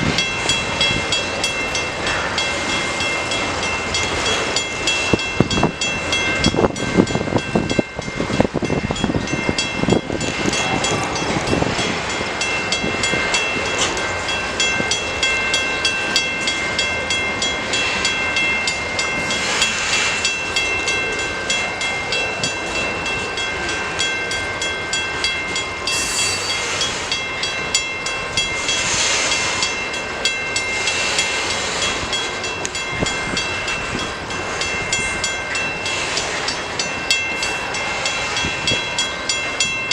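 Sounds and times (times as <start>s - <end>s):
train wheels clattering on rails: 0.0s - 39.9s
high ringing tones: 24.2s - 28.8s
hissing swells: 25.8s - 27.3s.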